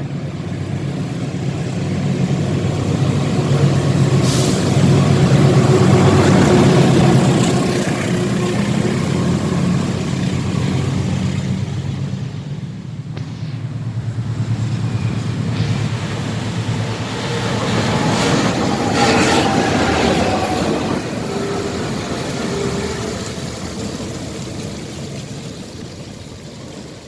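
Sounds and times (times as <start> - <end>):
locomotive engine throbbing: 0.0 - 27.0
air hiss: 4.2 - 5.0.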